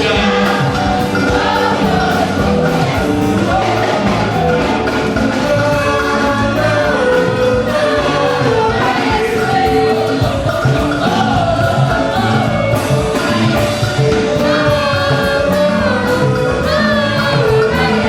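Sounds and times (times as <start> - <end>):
group singing gospel: 0.0 - 18.0
steady percussion beat: 0.0 - 18.0.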